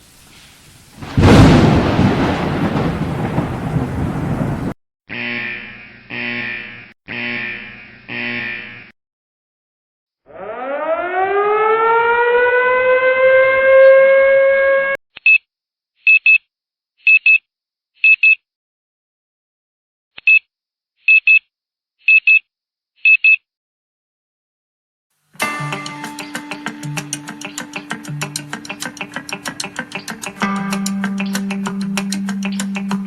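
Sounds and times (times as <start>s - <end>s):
siren winding up: 10.3s - 15.0s.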